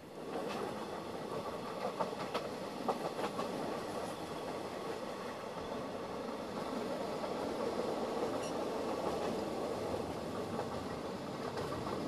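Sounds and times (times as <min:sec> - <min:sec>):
train wheels rumbling on rails: 0:00.0 - 0:12.0
wheels clacking over rail joints: 0:07.7 - 0:12.0.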